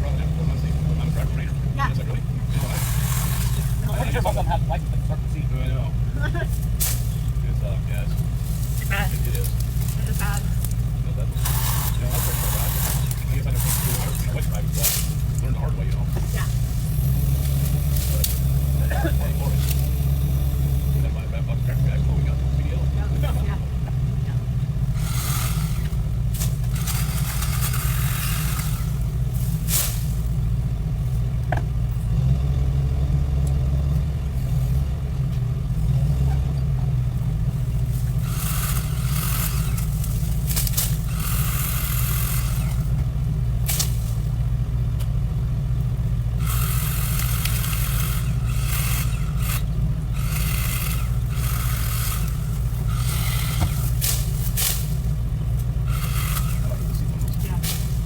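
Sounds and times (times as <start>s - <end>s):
vehicle engine rumbling: 0.0s - 58.0s
bursts of hissing: 46.4s - 58.0s.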